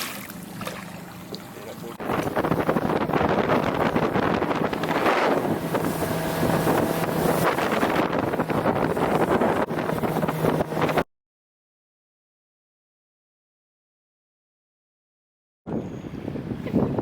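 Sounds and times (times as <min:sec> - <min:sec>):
outboard motor running: 0:00.0 - 0:11.0
wind buffeting microphone: 0:02.0 - 0:11.1, 0:15.7 - 0:17.0.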